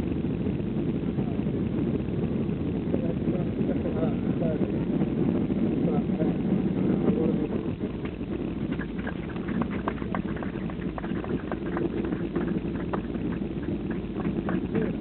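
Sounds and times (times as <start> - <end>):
low cabin rumble: 0.0 - 15.0
rattles and clicks: 8.0 - 15.0.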